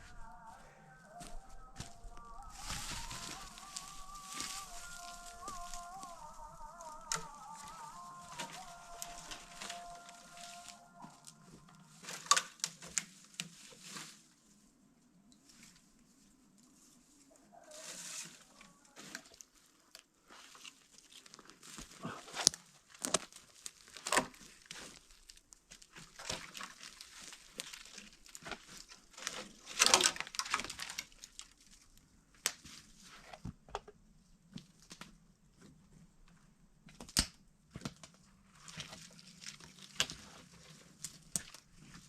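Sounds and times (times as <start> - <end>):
branches rustling: 0.0 - 33.6, 34.5 - 42.0
twigs snapping: 1.8 - 14.0, 20.6 - 32.9, 36.9 - 42.0.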